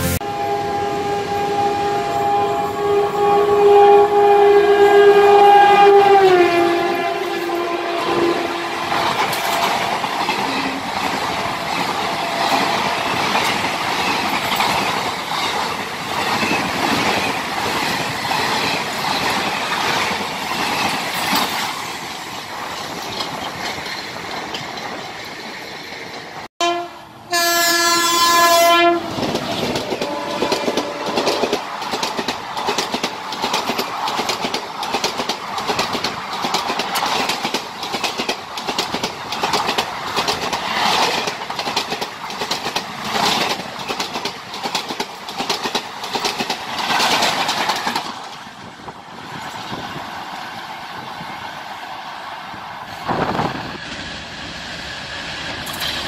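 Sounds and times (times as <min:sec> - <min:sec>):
locomotive horn blast: 0:00.0 - 0:09.2, 0:26.6 - 0:29.2, 0:30.0 - 0:31.5
train wheels clattering: 0:08.4 - 0:26.5, 0:29.1 - 0:48.6.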